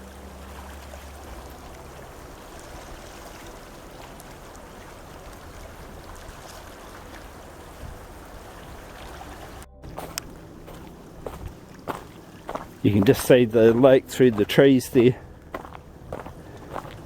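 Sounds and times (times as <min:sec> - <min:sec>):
wind rumbling on microphone: 0:00.2 - 0:17.0.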